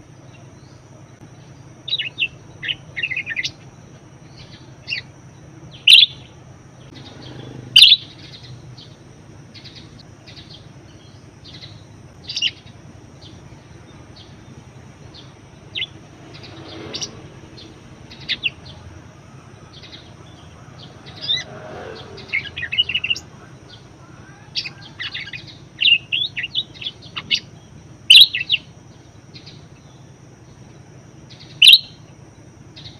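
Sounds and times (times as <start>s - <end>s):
faint steady hum: 0.0s - 32.9s
budgerigars chirping: 5.8s - 6.3s, 6.9s - 8.6s, 12.3s - 12.7s, 22.2s - 28.7s, 31.4s - 31.9s.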